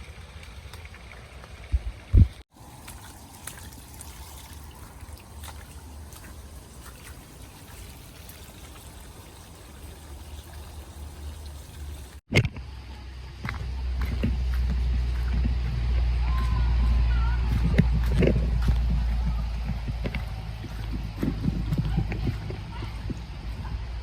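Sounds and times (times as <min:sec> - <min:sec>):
water trickling: 0:00.0 - 0:12.2.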